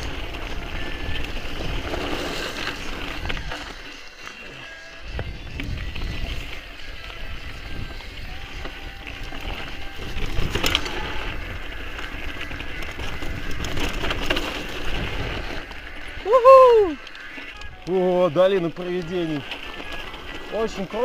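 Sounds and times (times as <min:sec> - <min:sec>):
bike tyres rattling over rocks: 0:00.0 - 0:21.0.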